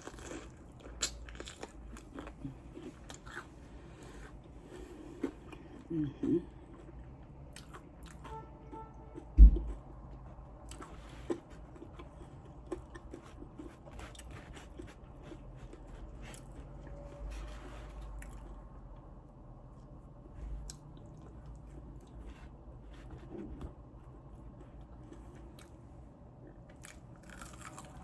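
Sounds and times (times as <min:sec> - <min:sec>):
chewing and crunching chicken wings: 0:00.0 - 0:28.0
heavy low thump: 0:09.3 - 0:09.8.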